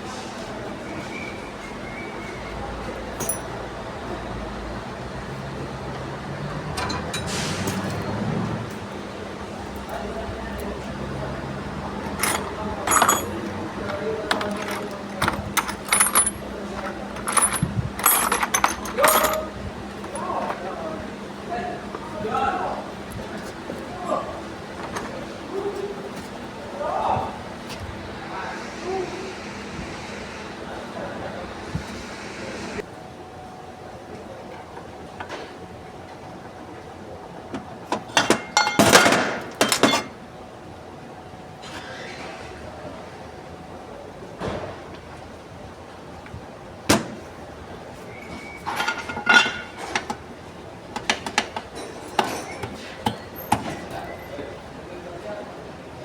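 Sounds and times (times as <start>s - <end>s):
low background noise: 0.0s - 56.0s
metal tools clinking: 3.1s - 3.6s, 6.7s - 8.1s, 12.0s - 20.7s, 23.4s - 26.3s, 38.1s - 40.2s, 48.6s - 50.2s.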